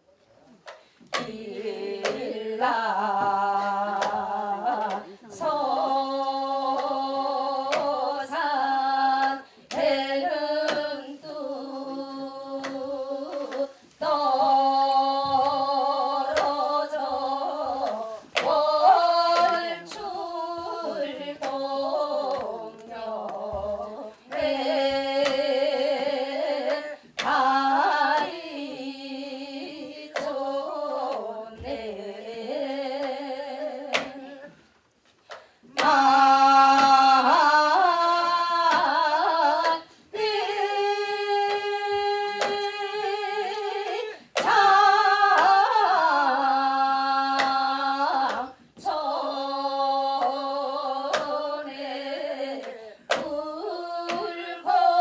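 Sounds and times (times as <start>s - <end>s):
person singing folk song: 0.6s - 55.0s.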